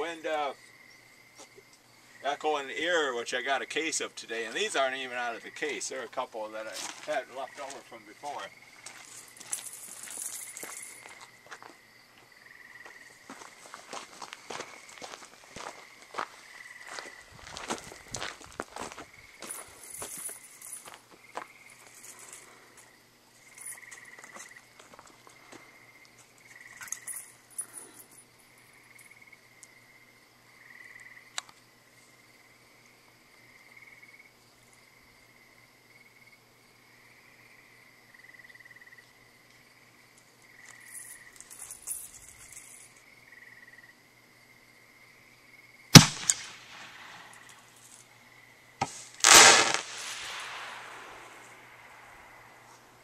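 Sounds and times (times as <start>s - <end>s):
insects chirping: 0.0s - 53.0s
firework bang: 46.0s - 47.4s, 48.8s - 52.4s
firework crackling burst: 48.8s - 52.6s.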